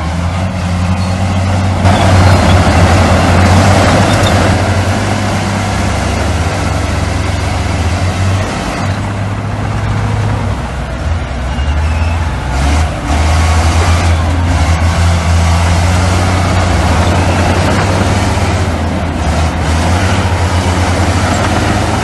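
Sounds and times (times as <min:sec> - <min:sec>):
rushing grinding noise: 0:00.0 - 0:11.0, 0:12.2 - 0:22.0
diesel machinery engine drone: 0:00.0 - 0:22.0.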